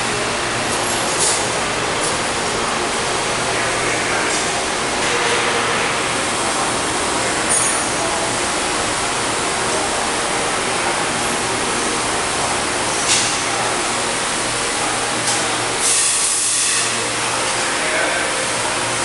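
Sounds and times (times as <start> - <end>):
hiss: 15.8 - 16.9.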